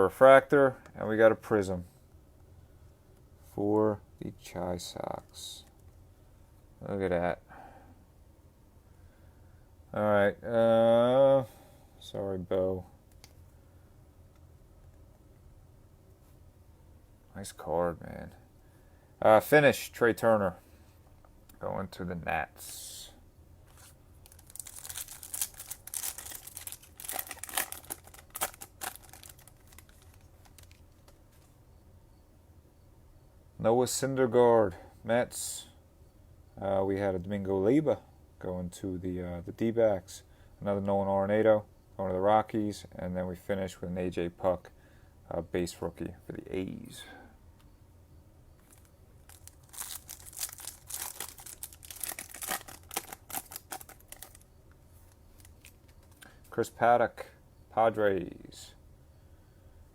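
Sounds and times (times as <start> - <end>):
wrapper crinkling and tearing: 23.7 - 31.2, 48.6 - 54.4, 55.4 - 56.2.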